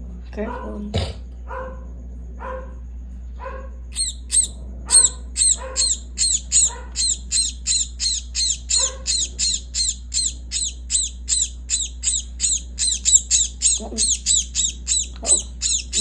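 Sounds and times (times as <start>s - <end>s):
lower bird calls: 3.9s - 16.0s
myna bird harsh calls: 3.9s - 16.0s.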